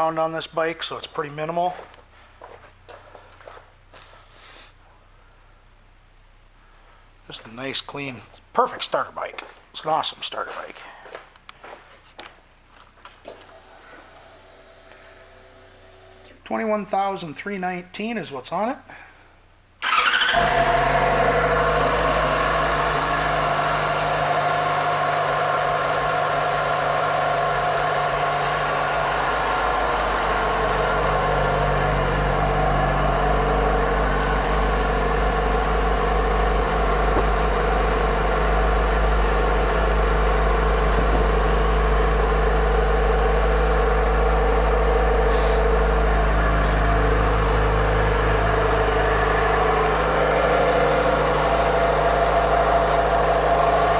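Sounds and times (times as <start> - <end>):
motorcycle engine idling: 19.8 - 53.9.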